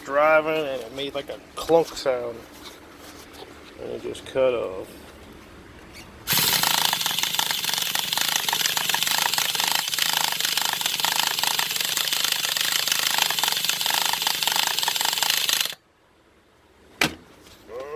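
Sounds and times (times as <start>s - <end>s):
electric starter cranking engine: 6.3s - 15.8s.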